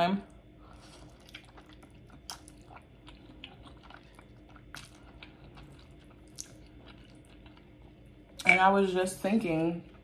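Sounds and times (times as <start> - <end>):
chewing noodles: 0.7 - 8.0.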